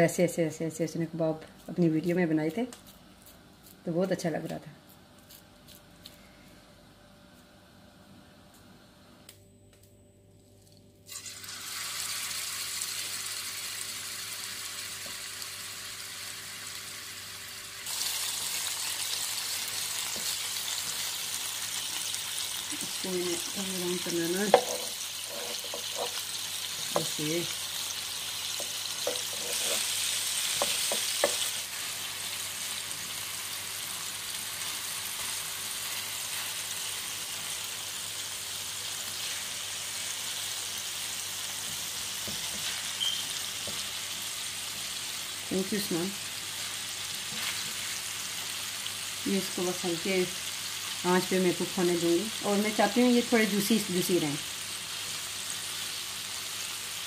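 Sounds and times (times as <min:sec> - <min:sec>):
kebabs sizzling in a frying pan: 0:11.1 - 0:57.0
utensil knocking against pan: 0:24.5 - 0:24.9.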